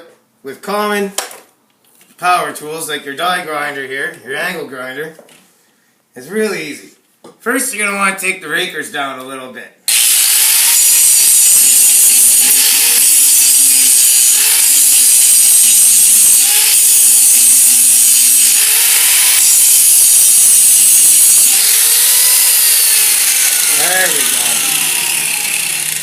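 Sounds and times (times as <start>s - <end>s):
power grinder grinding metal: 9.9s - 26.0s.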